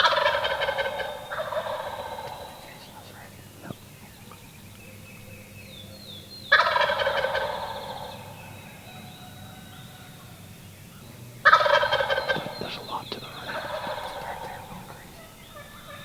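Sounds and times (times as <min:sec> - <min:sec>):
turkey gobbling: 0:00.0 - 0:04.4, 0:06.5 - 0:10.3, 0:11.4 - 0:16.0
faint songbird chirps: 0:00.7 - 0:16.0.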